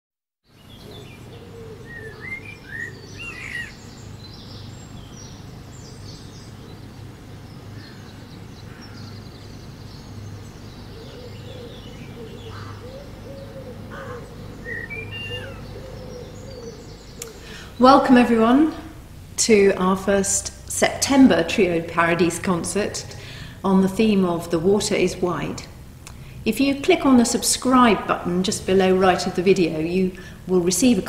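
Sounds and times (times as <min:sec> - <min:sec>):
lower wavering bird calls: 0:00.5 - 0:19.2
low background hum: 0:00.6 - 0:31.0
gliding bird chirps: 0:14.1 - 0:17.4.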